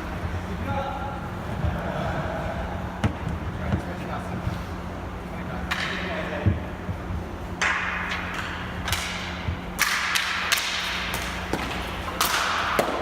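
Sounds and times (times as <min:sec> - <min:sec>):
steady low hum: 0:00.0 - 0:13.0
hockey sticks clacking: 0:05.7 - 0:06.1, 0:07.6 - 0:13.0.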